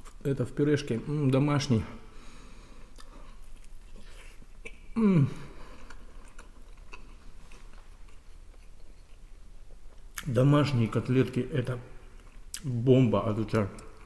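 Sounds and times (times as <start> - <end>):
man chewing food: 2.3 - 10.3, 11.9 - 12.7.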